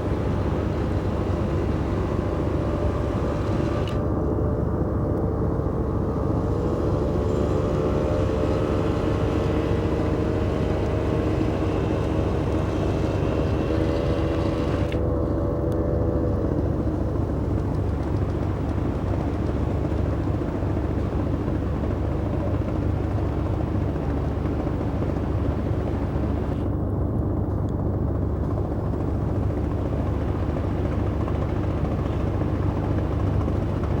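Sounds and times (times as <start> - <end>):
speedboat engine rumble: 0.0 - 26.6
high-pitched engine whine: 0.0 - 26.8.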